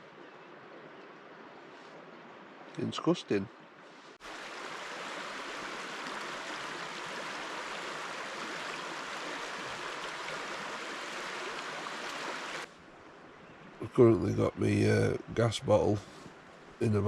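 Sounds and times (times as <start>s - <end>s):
stream rushing: 3.9s - 13.3s.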